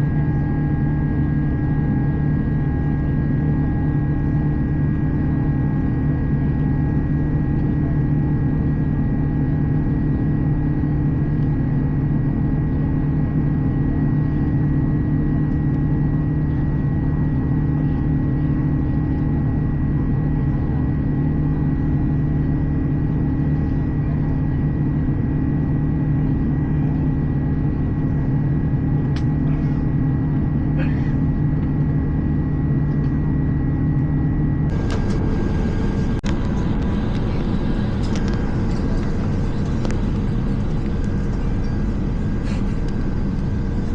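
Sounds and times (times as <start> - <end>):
aircraft engine and airflow drone: 0.0 - 43.9
steady tones: 34.7 - 43.9.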